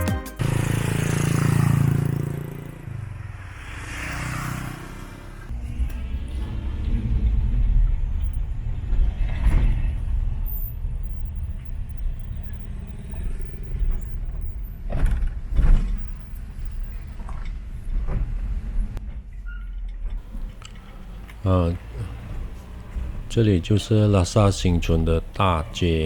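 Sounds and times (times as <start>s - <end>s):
vehicle low rumble: 0.4s - 26.0s
vehicle knocks and jolts: 13.9s - 18.7s.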